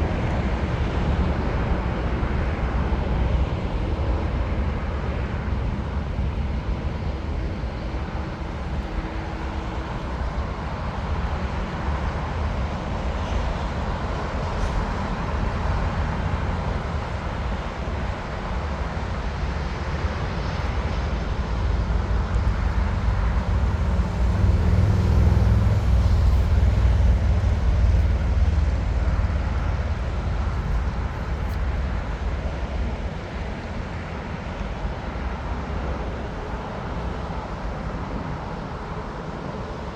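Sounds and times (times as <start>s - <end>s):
jet airliner engines rumbling: 0.0s - 39.9s.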